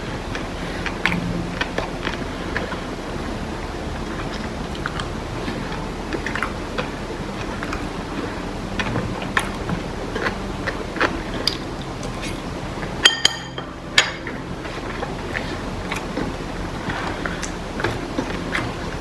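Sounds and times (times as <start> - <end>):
steady low hum: 0.0 - 19.0
chewing and utensil taps: 4.1 - 18.9.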